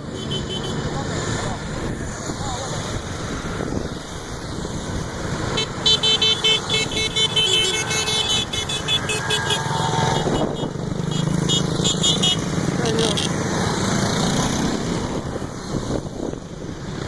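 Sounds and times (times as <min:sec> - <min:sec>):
horns tooting: 0:00.0 - 0:01.0, 0:05.4 - 0:13.3
motorcycle and car engines passing: 0:00.0 - 0:17.0.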